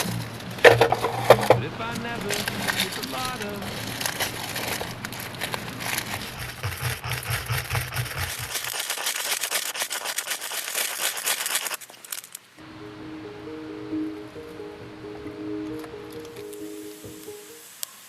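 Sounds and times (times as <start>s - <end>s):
dry tinder crackling: 0.0s - 12.7s, 15.6s - 18.0s
soft music notes: 12.6s - 18.0s.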